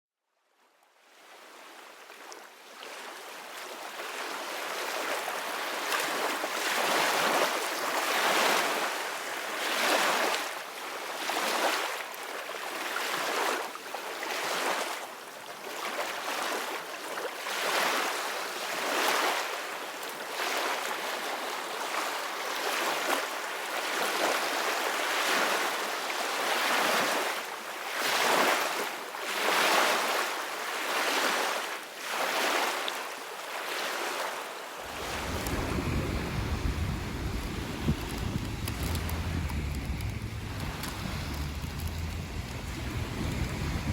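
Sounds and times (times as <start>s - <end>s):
sea waves washing ashore: 27.9s - 43.9s.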